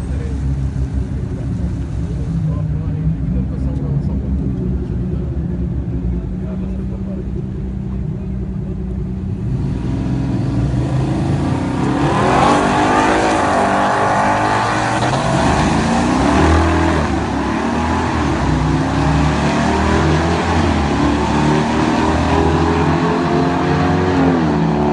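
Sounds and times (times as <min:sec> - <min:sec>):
truck engine rumbling and revving: 0:00.0 - 0:24.9.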